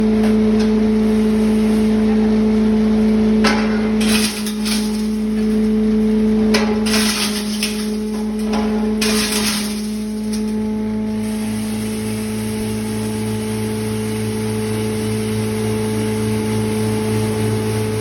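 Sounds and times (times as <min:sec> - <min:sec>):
grinding machine motor hum: 0:00.0 - 0:18.0
crushing and rattling: 0:03.4 - 0:11.1.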